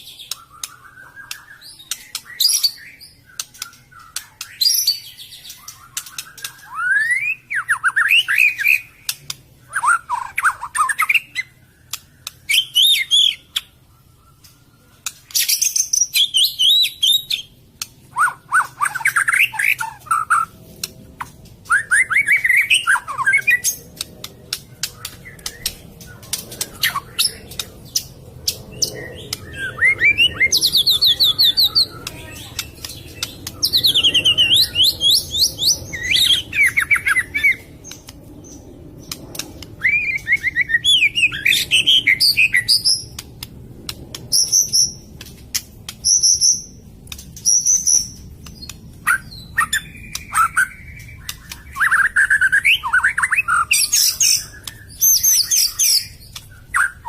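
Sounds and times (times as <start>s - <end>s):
bird singing whistles and trills: 0.0s - 20.5s, 21.6s - 43.2s, 46.0s - 57.0s
sharp clicks: 9.0s - 9.5s, 11.9s - 12.5s, 20.6s - 21.7s, 23.6s - 29.5s, 37.8s - 39.8s, 43.0s - 46.3s, 47.0s - 49.0s, 50.0s - 50.3s, 50.9s - 51.8s.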